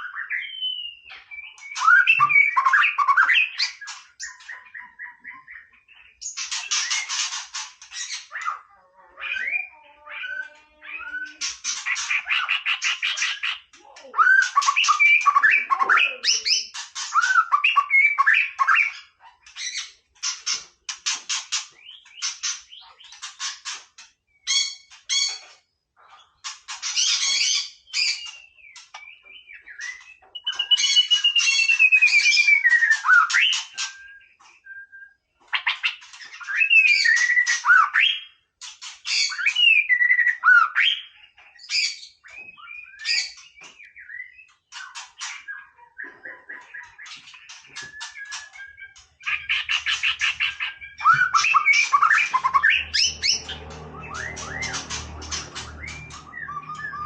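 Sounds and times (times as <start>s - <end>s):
bird singing: 0.0s - 57.0s.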